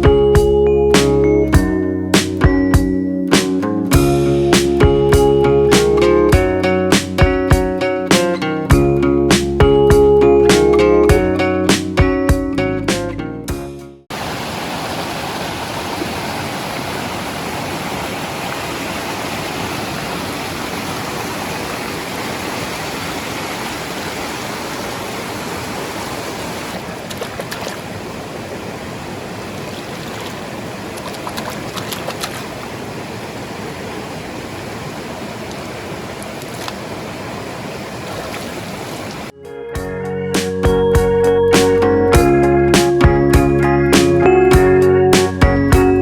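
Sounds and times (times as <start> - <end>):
flowing water: 14.1 - 39.4.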